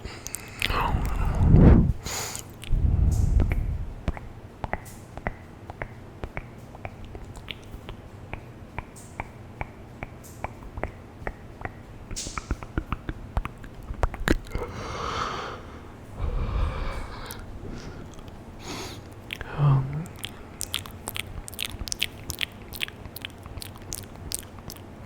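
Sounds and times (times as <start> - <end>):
breathy puffs: 0.0 - 3.9, 14.4 - 21.2
wet mouth clicks and smacks: 0.0 - 14.7, 16.3 - 25.0.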